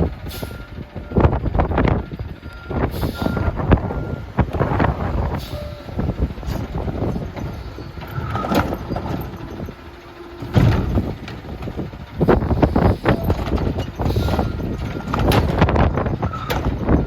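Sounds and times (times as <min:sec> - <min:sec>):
garbage truck engine running: 0:00.0 - 0:17.0
wind buffeting microphone: 0:00.0 - 0:17.0
cart arm knocks and clanks: 0:06.0 - 0:17.0.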